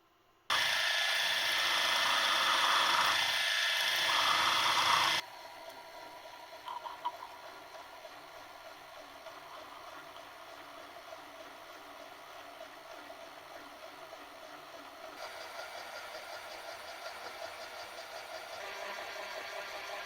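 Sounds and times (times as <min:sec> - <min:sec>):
power tool running loudly: 0:00.5 - 0:05.2.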